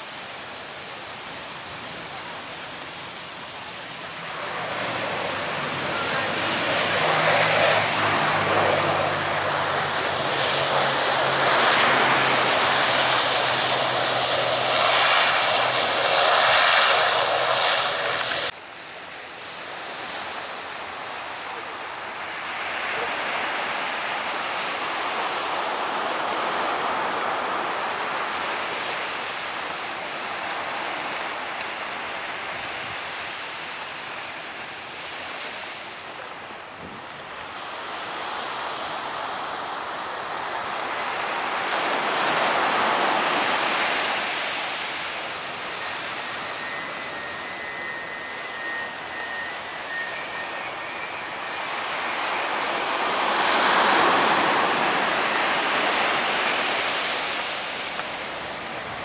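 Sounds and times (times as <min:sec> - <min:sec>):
surf breaking on a beach: 0:01.2 - 0:18.5, 0:37.8 - 0:59.0
faint thin whistle: 0:44.8 - 0:56.7.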